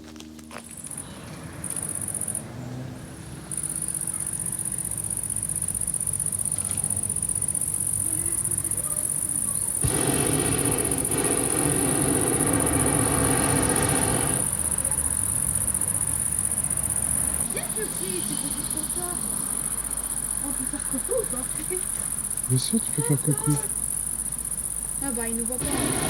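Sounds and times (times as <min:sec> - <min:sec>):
insects chirring: 0:00.4 - 0:26.0
even rushing noise: 0:09.8 - 0:14.8, 0:25.6 - 0:26.0.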